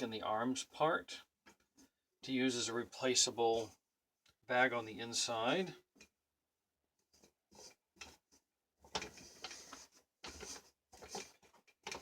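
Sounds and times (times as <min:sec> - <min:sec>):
cloth and plastic parts rustling: 0:06.9 - 0:12.0.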